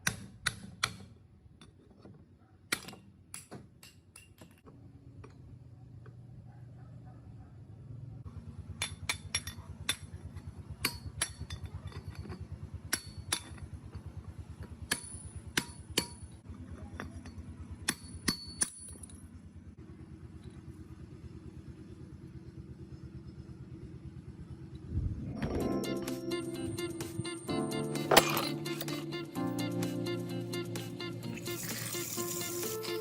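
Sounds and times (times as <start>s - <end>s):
metallic clinks of steel tools: 28.0s - 29.0s.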